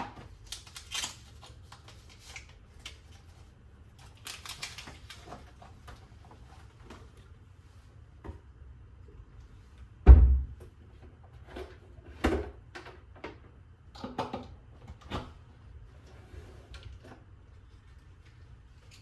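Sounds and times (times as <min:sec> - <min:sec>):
heavy thump: 0:10.0 - 0:10.6.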